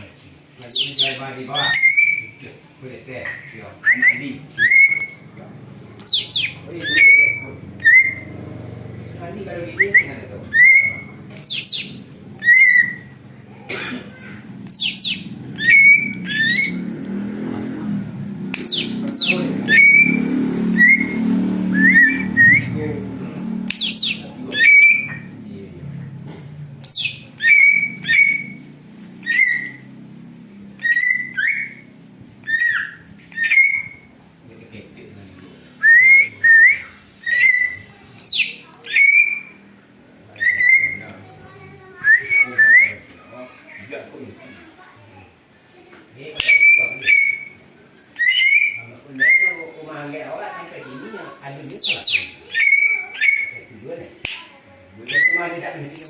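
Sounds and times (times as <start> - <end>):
bird whistling sharp notes: 18.6 - 22.8, 48.2 - 49.7.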